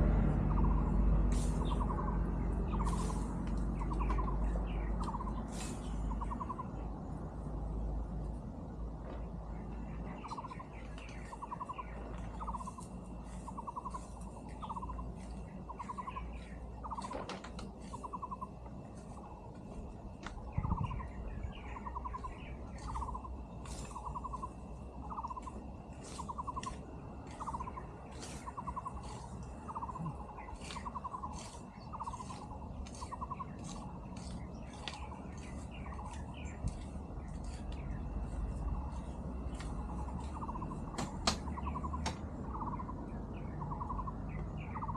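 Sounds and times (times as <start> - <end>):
scattered ticks: 10.0 - 43.0
animal calling in trilled notes: 20.5 - 36.2.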